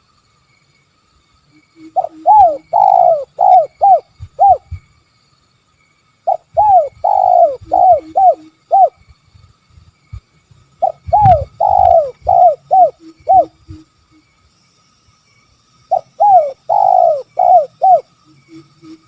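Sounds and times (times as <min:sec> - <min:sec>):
dove cooing: 0:02.0 - 0:04.8, 0:06.3 - 0:09.0, 0:10.8 - 0:13.8, 0:15.9 - 0:18.1.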